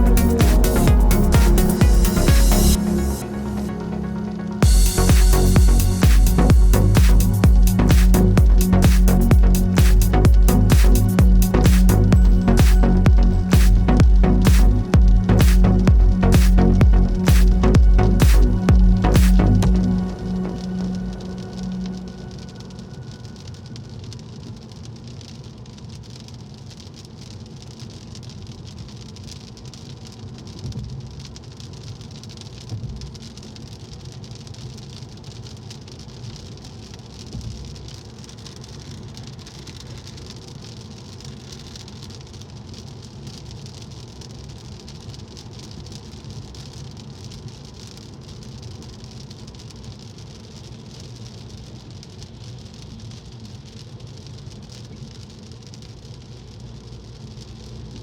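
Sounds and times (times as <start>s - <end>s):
low rumble: 0.0s - 24.2s
steady rain: 0.0s - 58.0s
loud thumps: 4.6s - 19.8s.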